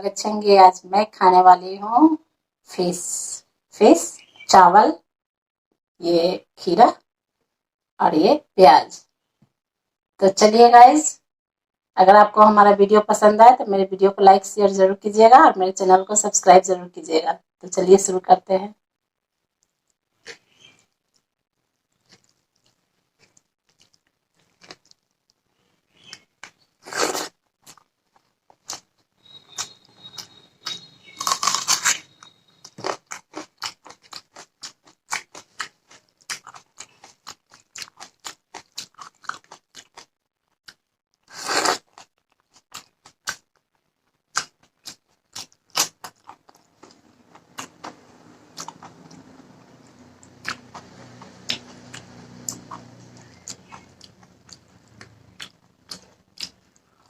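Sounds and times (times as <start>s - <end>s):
wet chewing: 19.6s - 57.0s
crunchy bites: 25.9s - 48.0s.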